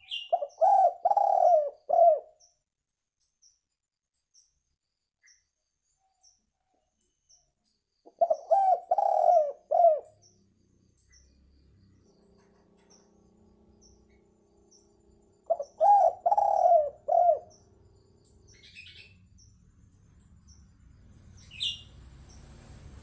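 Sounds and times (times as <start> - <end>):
dove cooing: 0.0 - 2.4, 8.1 - 10.2, 15.5 - 17.6
small birds chirping: 0.0 - 23.0.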